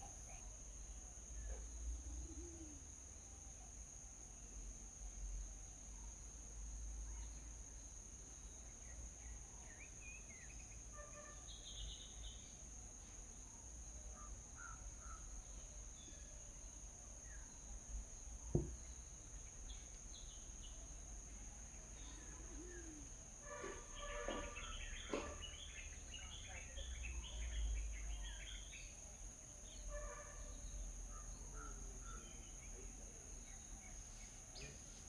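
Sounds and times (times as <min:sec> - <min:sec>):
small birds chirping: 0:07.1 - 0:12.6, 0:14.1 - 0:23.1, 0:23.8 - 0:35.0.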